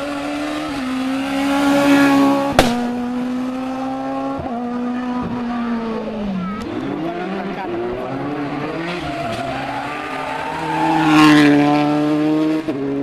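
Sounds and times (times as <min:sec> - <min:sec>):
rally car engine at high revs: 0:00.0 - 0:13.0
sharp crack: 0:02.5 - 0:03.0.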